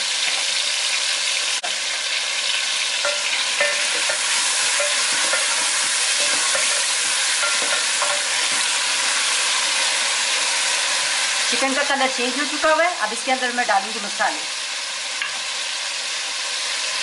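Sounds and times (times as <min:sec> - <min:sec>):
chicken sizzling in oil: 0:00.0 - 0:17.0
spatula scraping pot: 0:03.0 - 0:09.4.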